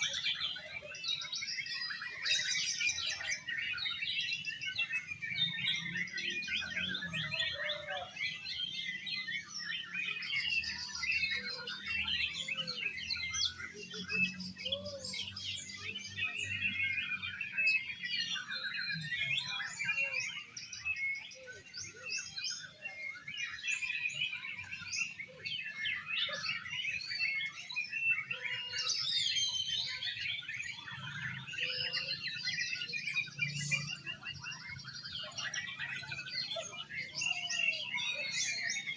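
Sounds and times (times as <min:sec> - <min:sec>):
birds singing: 0:00.0 - 0:38.9.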